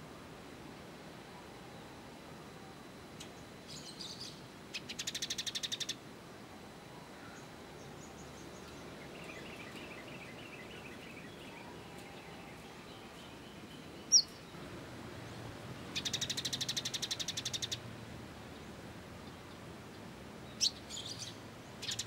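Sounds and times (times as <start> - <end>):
background hiss: 0.0 - 22.0
songbirds twittering: 2.8 - 6.0, 6.9 - 22.0
bird trilling: 3.8 - 6.0, 14.0 - 14.4, 15.9 - 17.8, 20.6 - 22.0.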